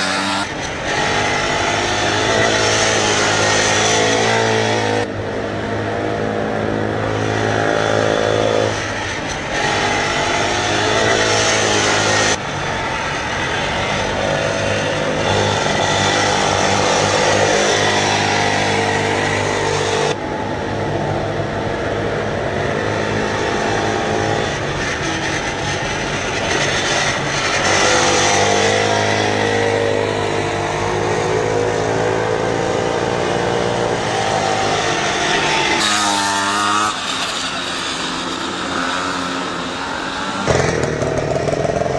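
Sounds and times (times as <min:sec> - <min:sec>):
pocket bike engines revving: 0:22.6 - 0:41.9.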